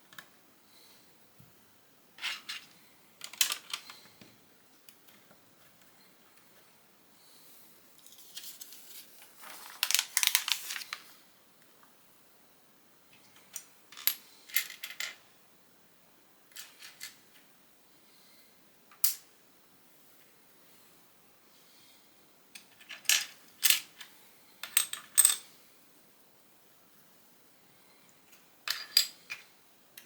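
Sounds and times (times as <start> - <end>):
plastic pieces clattering: 2.2 - 4.1, 9.4 - 11.0.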